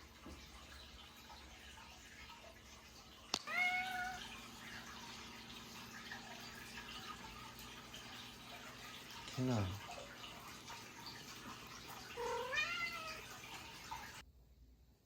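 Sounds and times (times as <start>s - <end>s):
cat meowing: 3.4s - 4.3s, 12.2s - 13.4s.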